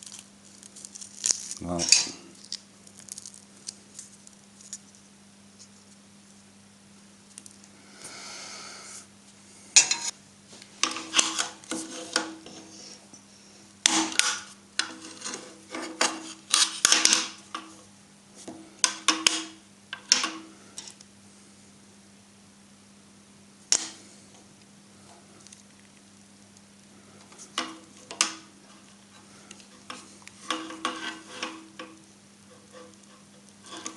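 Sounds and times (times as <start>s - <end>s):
faint steady hum: 0.0s - 33.9s
rasping scrapes on cable: 11.0s - 13.0s, 13.8s - 17.4s, 28.6s - 31.8s, 32.5s - 33.9s.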